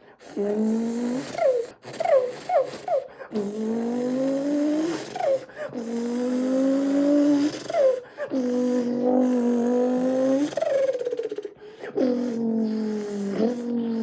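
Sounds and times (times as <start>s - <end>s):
man imitating engine: 0.3s - 14.0s.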